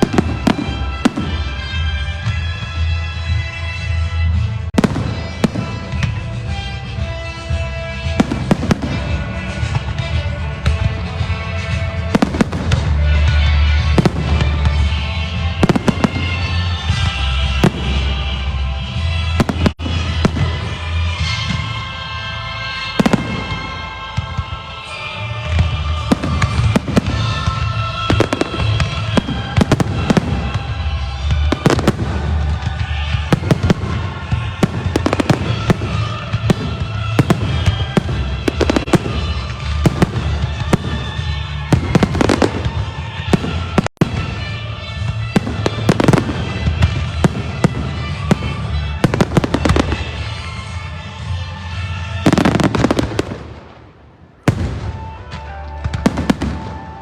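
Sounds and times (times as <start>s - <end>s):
fireworks bursting and crackling: 0.0s - 57.0s
loud music: 0.0s - 57.0s.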